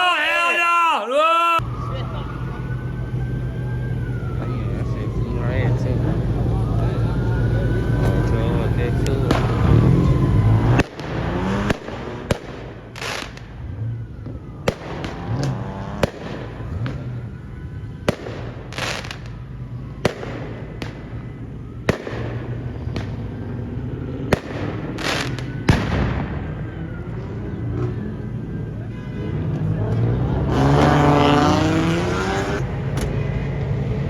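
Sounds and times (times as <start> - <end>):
fireworks bangs: 7.9 - 26.8.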